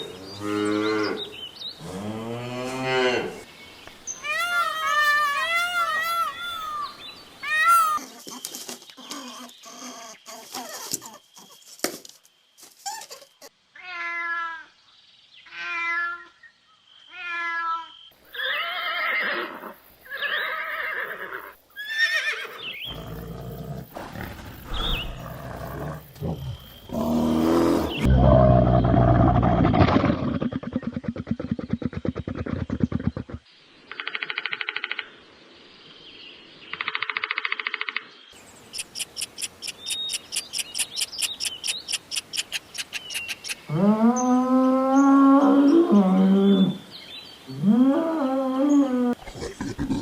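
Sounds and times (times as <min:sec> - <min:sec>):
rough low animal calls: 0:04.2 - 0:08.4, 0:47.5 - 0:50.0
animal calls: 0:04.2 - 0:11.6, 0:47.5 - 0:50.0.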